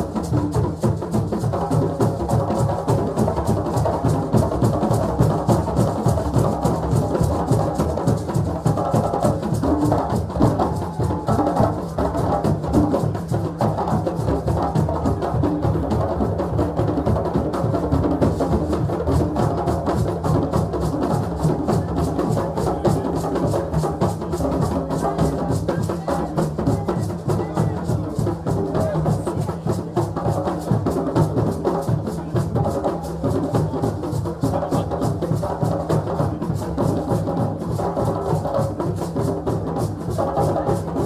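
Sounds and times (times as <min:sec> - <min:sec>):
muffled drums in fast rhythm: 0:00.0 - 0:41.0.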